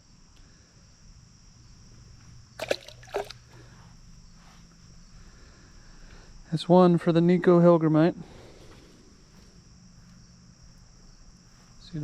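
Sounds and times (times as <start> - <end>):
insects chirring: 0.0 - 12.0
water splashing: 2.6 - 3.6.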